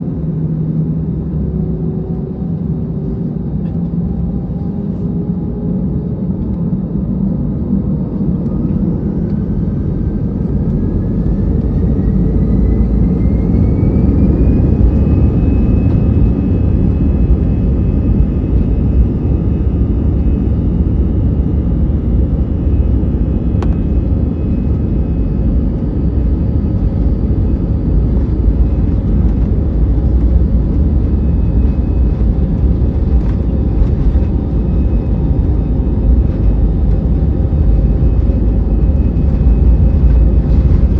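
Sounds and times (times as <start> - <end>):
jet engine whine: 0.0 - 40.9
takeoff roll rumble: 22.0 - 40.9.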